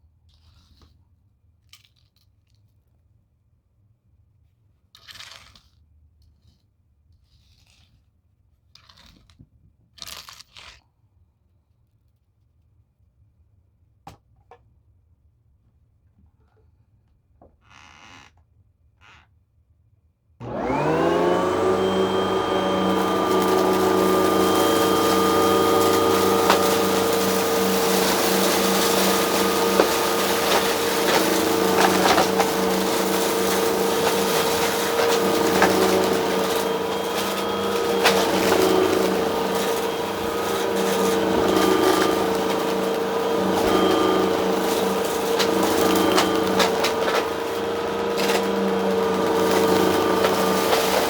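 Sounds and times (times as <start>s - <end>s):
debris crackling up nozzle: 20.4s - 51.0s
vacuum cleaner motor whine: 20.4s - 51.0s.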